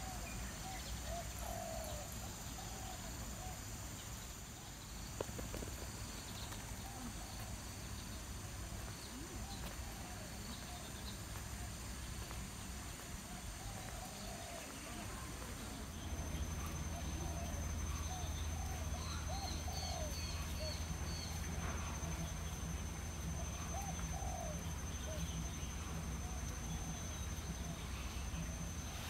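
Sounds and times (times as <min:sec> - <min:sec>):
steady low rumble: 0:02.0 - 0:29.0
birds calling: 0:13.4 - 0:29.0.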